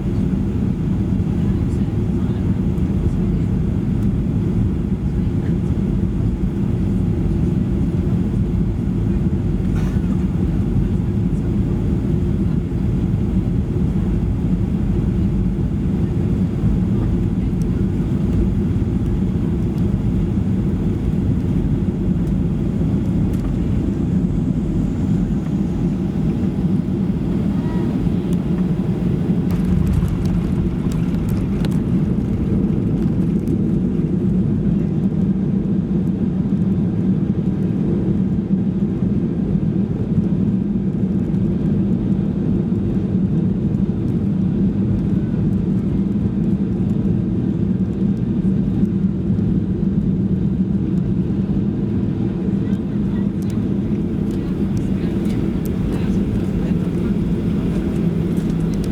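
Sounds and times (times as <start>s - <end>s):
airplane cabin rumble: 0.0s - 58.9s
faint clicks: 54.2s - 58.9s.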